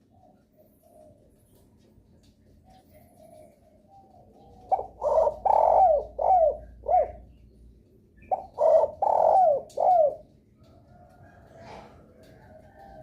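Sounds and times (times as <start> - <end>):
dove cooing: 0.0 - 1.9, 2.6 - 7.5, 8.2 - 13.0.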